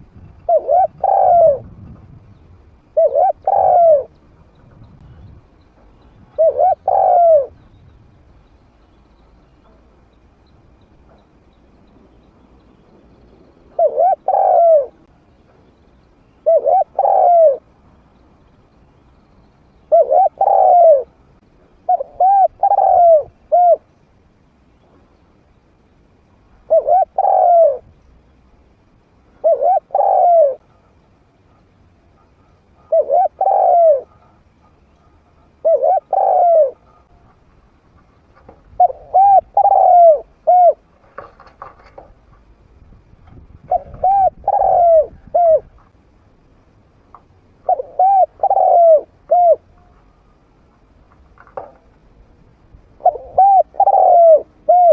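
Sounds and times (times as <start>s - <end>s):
dove cooing: 0.3s - 1.9s, 2.9s - 5.2s, 6.1s - 7.6s, 13.7s - 15.1s, 16.4s - 17.7s, 19.9s - 21.2s, 21.8s - 23.9s, 26.6s - 27.9s, 29.3s - 37.4s, 38.0s - 42.2s, 43.6s - 45.9s, 47.6s - 50.0s, 53.0s - 54.9s.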